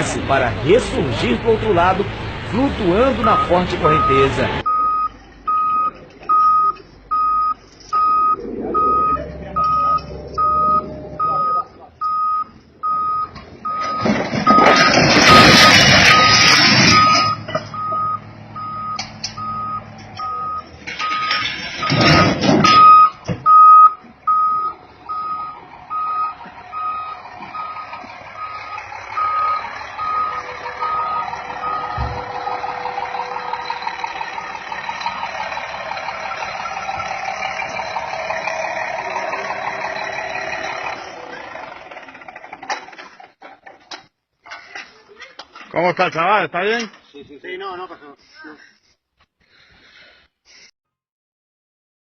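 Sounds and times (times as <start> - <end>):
vehicle reversing alarm beeping: 2.9 - 41.4.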